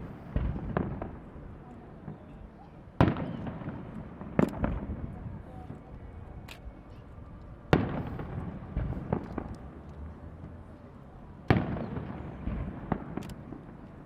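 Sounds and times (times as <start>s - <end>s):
firework bangs echoing: 0.0s - 1.4s, 3.0s - 5.1s, 7.7s - 9.6s, 11.5s - 13.8s
small firework cracks: 0.0s - 10.1s, 11.4s - 14.0s.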